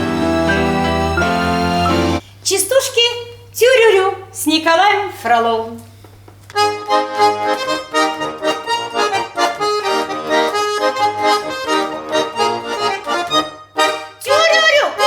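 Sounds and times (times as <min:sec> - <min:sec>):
button accordion playing chords: 0:00.0 - 0:02.2, 0:06.6 - 0:15.0.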